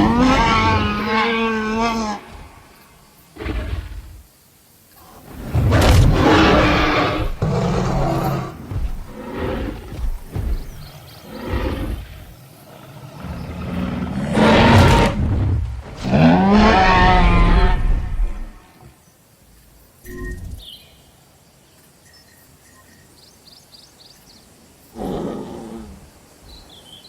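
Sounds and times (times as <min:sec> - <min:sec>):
dinosaur roars: 0:00.0 - 0:02.7, 0:05.1 - 0:18.6.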